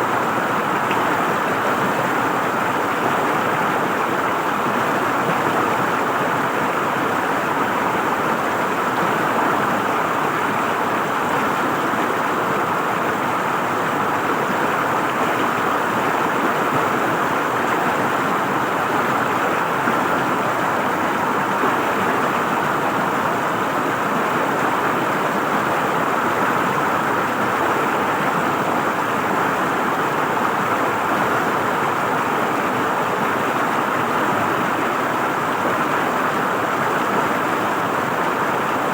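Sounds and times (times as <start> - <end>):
river water flowing and gurgling: 0.0 - 38.9.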